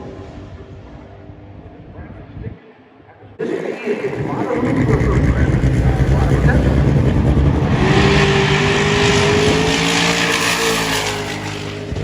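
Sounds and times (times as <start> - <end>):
drag race car engine accelerating: 4.0 - 12.0.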